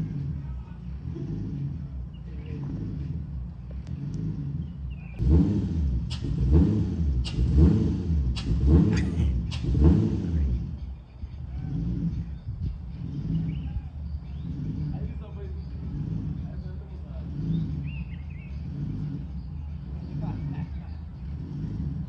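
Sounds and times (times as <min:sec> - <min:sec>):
car engine idling and revving: 0:00.0 - 0:22.0
exhaust cracks: 0:00.0 - 0:22.0.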